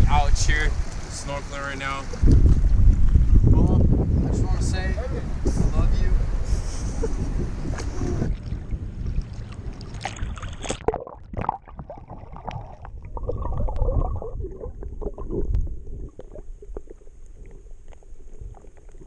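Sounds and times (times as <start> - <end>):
underwater gurgling and bubbling: 7.3 - 19.0
small underwater clicks: 15.2 - 19.0.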